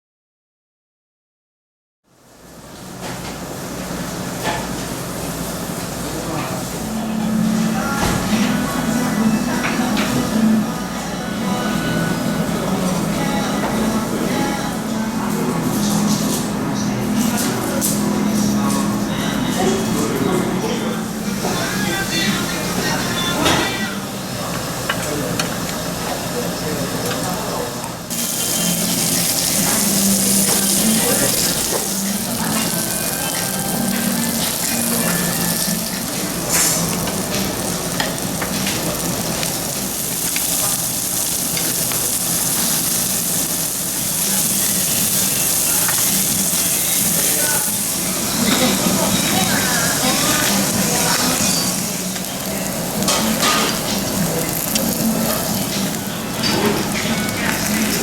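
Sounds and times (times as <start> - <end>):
meat sizzling on a grill: 28.1 - 58.0.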